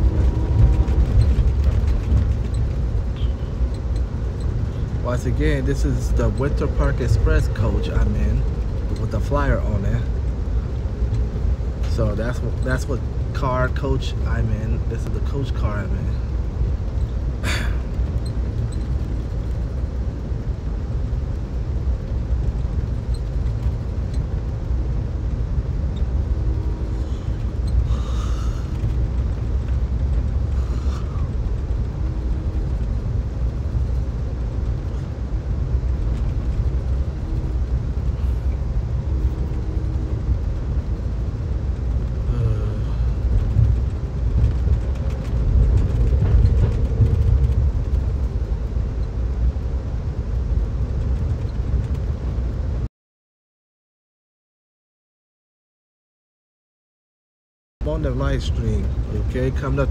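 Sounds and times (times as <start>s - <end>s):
train rumble inside car: 0.0s - 52.9s, 57.8s - 59.9s
faint short hums: 27.0s - 28.9s, 42.2s - 43.2s.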